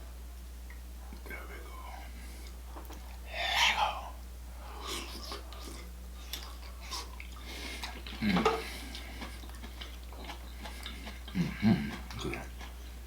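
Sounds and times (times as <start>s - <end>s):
wet eating smacks and clicks: 5.2s - 12.9s.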